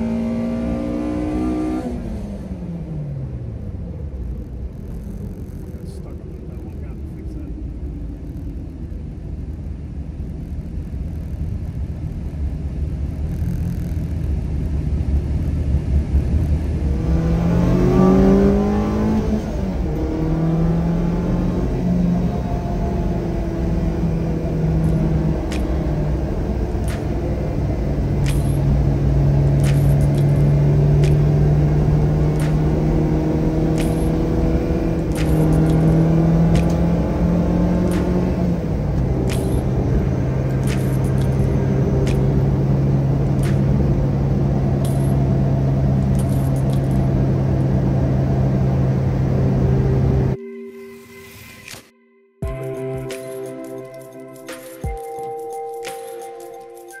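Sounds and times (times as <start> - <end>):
car engine accelerating: 0.0 - 50.4.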